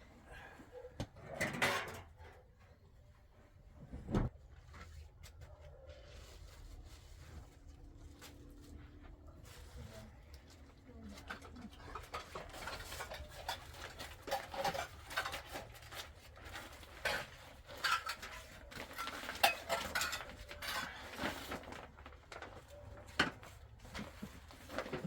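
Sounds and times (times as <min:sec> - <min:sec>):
dishes and utensils clinking: 0:01.3 - 0:02.2, 0:16.8 - 0:21.0.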